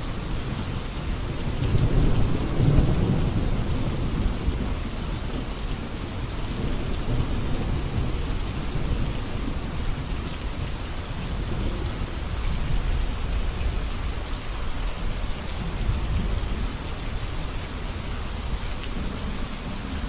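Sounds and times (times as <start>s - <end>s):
rain falling: 0.0s - 20.0s.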